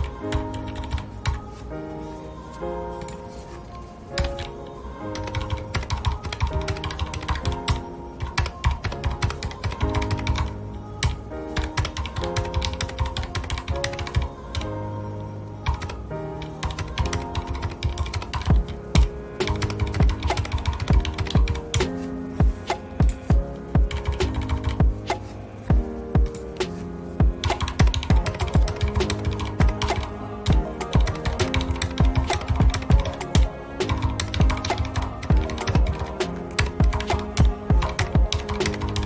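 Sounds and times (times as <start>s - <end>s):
music with held notes: 0.0s - 39.0s
mechanical keyboard typing: 5.3s - 14.6s, 16.6s - 21.6s.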